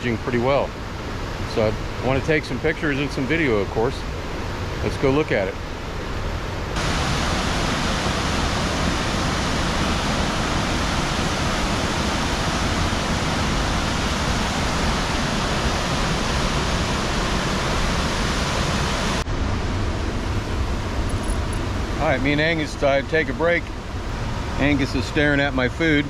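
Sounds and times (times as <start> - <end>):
river water rushing over rocks: 6.8 - 19.2.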